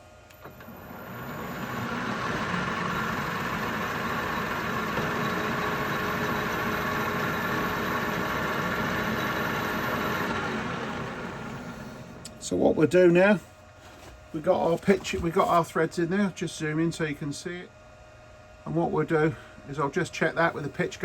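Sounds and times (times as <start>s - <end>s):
metal lathe running: 0.5s - 12.6s.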